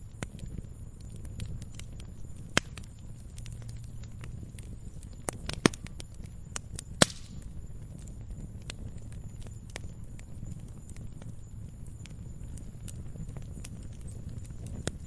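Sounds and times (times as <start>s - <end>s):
campfire crackling: 0.0s - 15.0s
sharp loud pops of fire: 1.2s - 6.0s, 6.6s - 7.6s.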